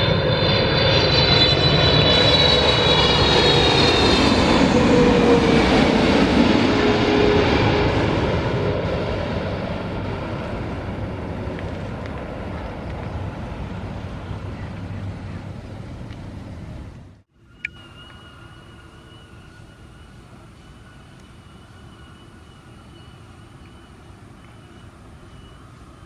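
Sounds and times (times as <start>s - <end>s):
jet airliner rumble: 0.0s - 26.0s
faint high whistle: 17.4s - 26.0s.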